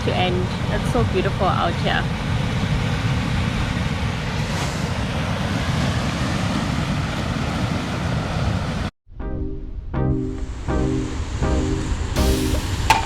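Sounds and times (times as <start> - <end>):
ocean surf: 0.0 - 8.9
wind buffeting microphone: 0.0 - 8.9
background music: 9.2 - 13.0.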